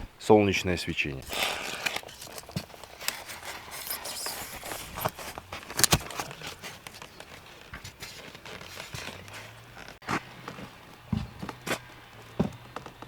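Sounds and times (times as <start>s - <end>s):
rustling: 1.2s - 13.0s.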